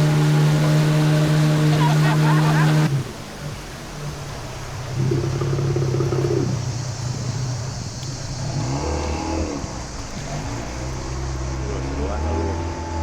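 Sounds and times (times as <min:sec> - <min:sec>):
motor engine running: 0:00.0 - 0:03.7.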